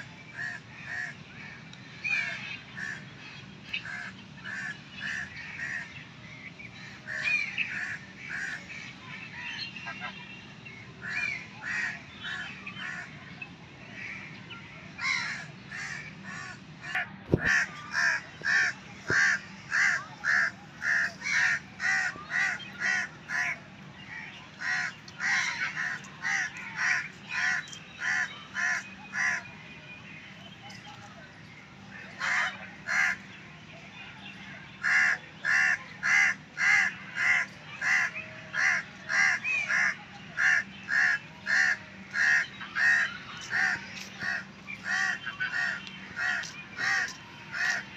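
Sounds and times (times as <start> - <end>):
harsh bird calls: 15.0 - 29.6, 34.6 - 47.9.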